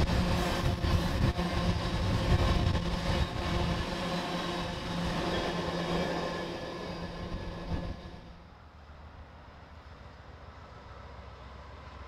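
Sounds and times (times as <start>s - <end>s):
freight train wheels rattling: 0.0s - 8.4s.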